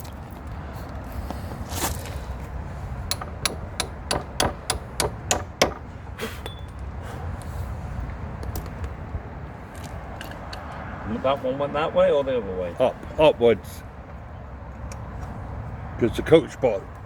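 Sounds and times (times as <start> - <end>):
hammer striking a bolt: 3.0 - 6.8
short metallic ring: 6.4 - 6.8.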